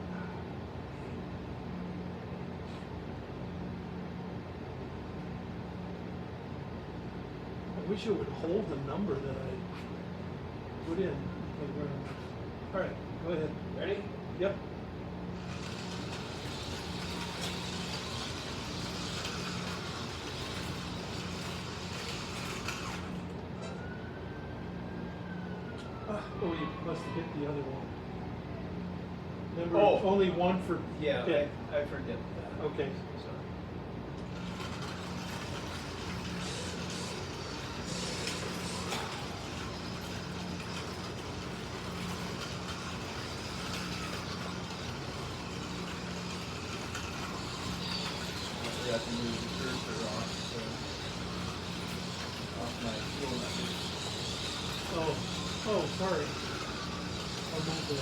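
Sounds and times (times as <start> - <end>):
slot cars whirring on track: 14.5 - 25.3, 33.6 - 58.0
tyres hissing on rails: 15.2 - 23.3, 34.2 - 58.0.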